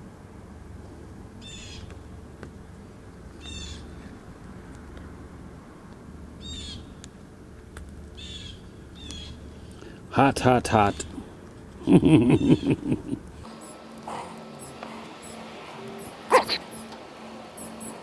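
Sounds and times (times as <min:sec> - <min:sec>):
bird chirping calls: 0:13.5 - 0:16.9, 0:17.5 - 0:18.0
low steady hum: 0:13.5 - 0:18.0.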